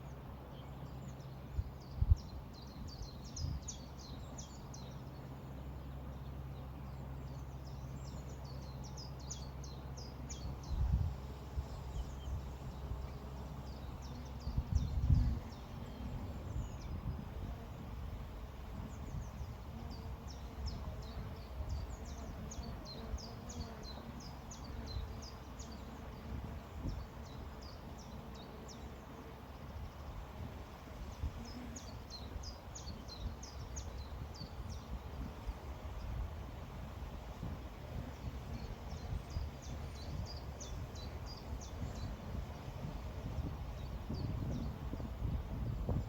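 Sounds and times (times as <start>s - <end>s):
songbirds chirping: 0.0s - 46.0s
wind buffeting microphone: 1.5s - 4.8s, 10.3s - 23.8s, 26.1s - 27.7s, 29.7s - 46.0s.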